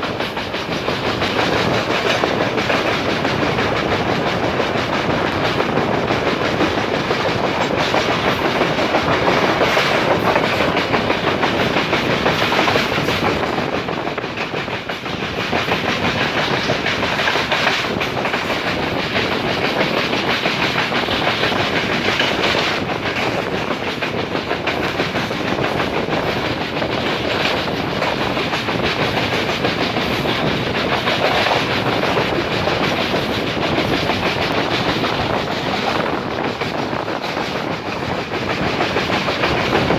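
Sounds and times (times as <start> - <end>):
train rumbling: 0.0 - 39.9
wheels clacking over rail joints: 0.0 - 39.9.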